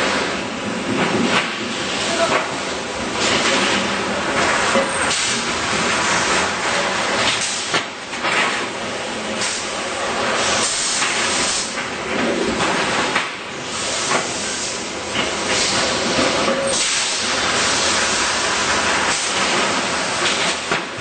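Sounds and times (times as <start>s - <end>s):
welding machine hissing: 3.0s - 7.8s, 9.3s - 11.8s, 12.9s - 20.7s.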